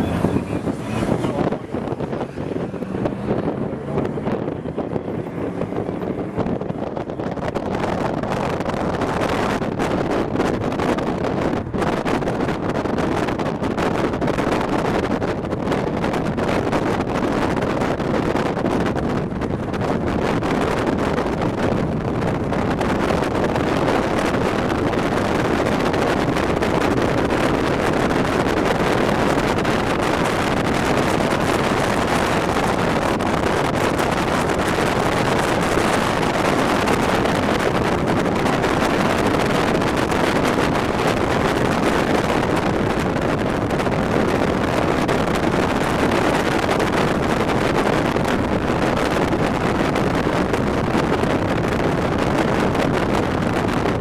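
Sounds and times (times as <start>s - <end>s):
moving vehicle road noise: 0.0s - 54.0s
wind buffeting microphone: 0.0s - 54.0s.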